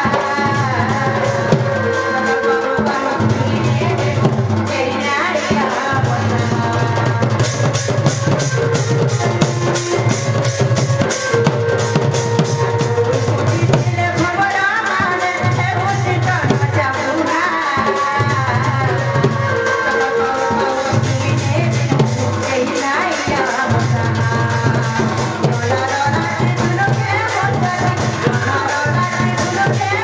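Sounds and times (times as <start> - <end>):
quick drum beat: 3.2 - 19.4
sustained melody line: 6.3 - 13.9.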